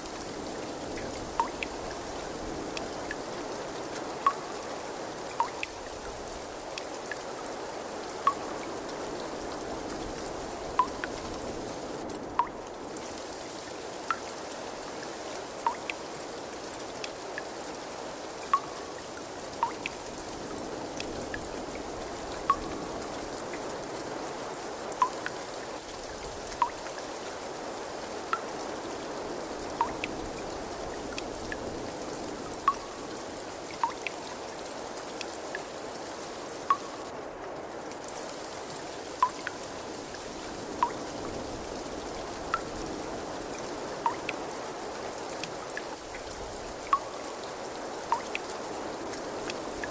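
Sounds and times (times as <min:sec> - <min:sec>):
water trickling: 0:00.0 - 0:24.2, 0:24.9 - 0:27.4, 0:28.1 - 0:37.1, 0:38.0 - 0:49.9
water drops plinking: 0:01.3 - 0:01.7, 0:04.2 - 0:04.4, 0:05.4 - 0:05.8, 0:10.8 - 0:11.1, 0:15.6 - 0:16.0, 0:18.5 - 0:18.9, 0:19.6 - 0:20.0, 0:22.5 - 0:22.7, 0:26.6 - 0:26.8, 0:29.8 - 0:30.1, 0:32.6 - 0:33.0, 0:33.8 - 0:34.2, 0:36.7 - 0:37.0, 0:39.2 - 0:39.6, 0:40.8 - 0:41.0, 0:44.0 - 0:44.4, 0:46.9 - 0:47.2.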